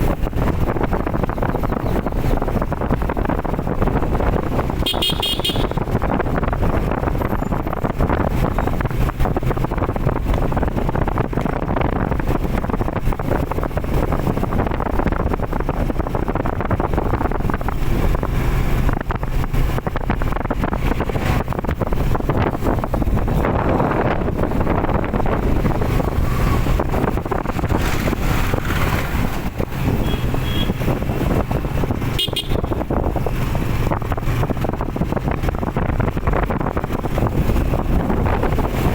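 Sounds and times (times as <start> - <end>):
engine humming: 0.0 - 38.9
road traffic noise: 0.0 - 38.9
vehicle horn toot: 4.8 - 5.9, 29.9 - 30.9, 32.1 - 32.8.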